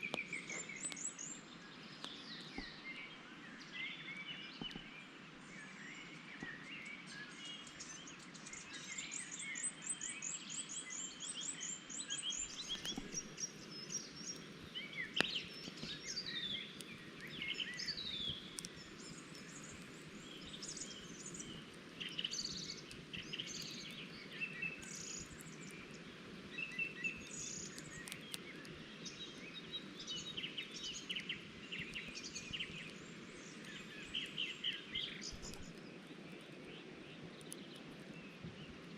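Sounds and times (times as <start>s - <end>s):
birds chirping and singing: 5.6s - 35.9s.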